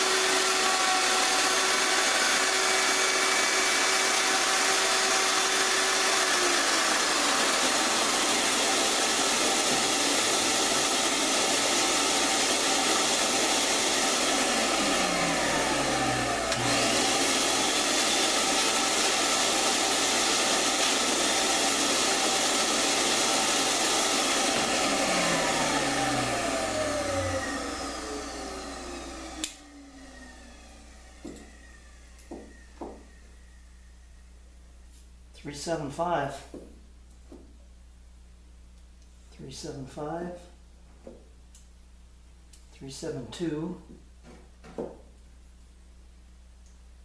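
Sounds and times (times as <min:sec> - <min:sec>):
woodworking machine whirring: 0:00.0 - 0:33.6
click: 0:29.4 - 0:29.6, 0:46.6 - 0:46.8.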